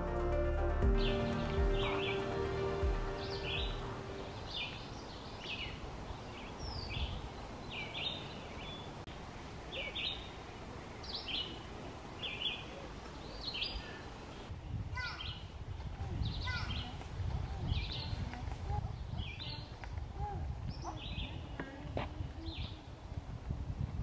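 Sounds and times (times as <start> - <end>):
background music: 0.0 - 4.7
woodland ambience hiss: 0.0 - 14.5
songbird chirping: 0.0 - 23.1.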